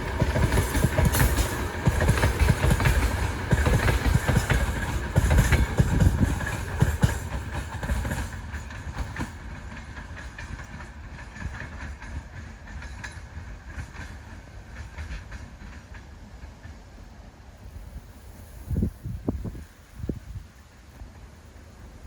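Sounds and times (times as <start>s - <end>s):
train wheels clacking: 0.0s - 17.4s.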